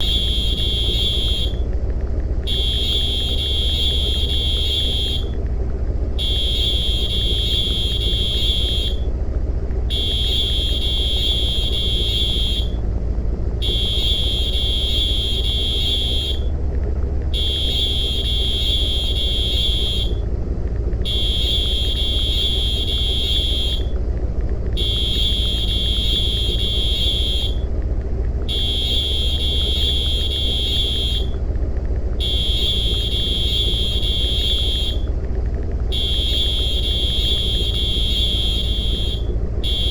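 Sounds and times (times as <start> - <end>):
low rumble: 0.0 - 39.9
electronic alarm high-pitched tone: 35.9 - 39.9.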